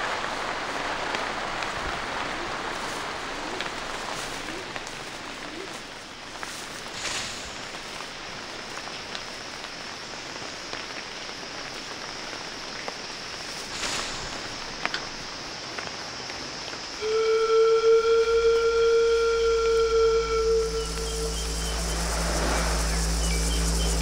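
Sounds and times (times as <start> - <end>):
rain hiss: 0.0 - 24.0
thin high steady whine: 16.9 - 24.0
loud steady held tone: 17.0 - 24.0
low hum: 17.0 - 24.0.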